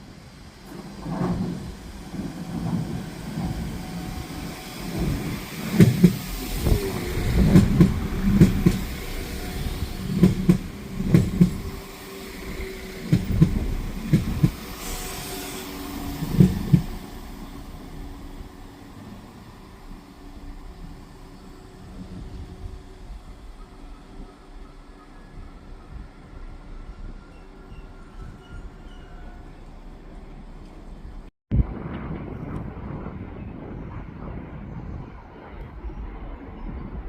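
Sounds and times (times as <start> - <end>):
train steady rumble: 0.0 - 31.3
train wheels clattering over rail joints: 2.4 - 17.1.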